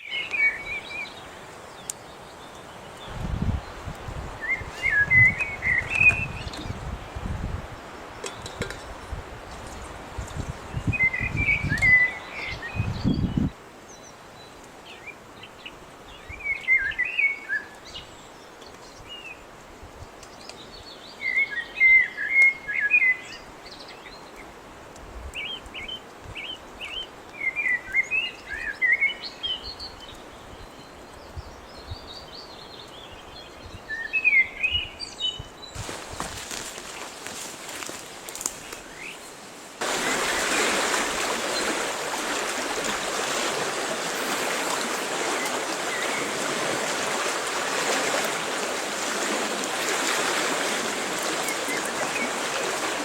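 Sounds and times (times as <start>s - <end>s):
songbird chirping: 0.0s - 7.0s, 25.3s - 53.0s
woodland background noise: 0.0s - 53.0s.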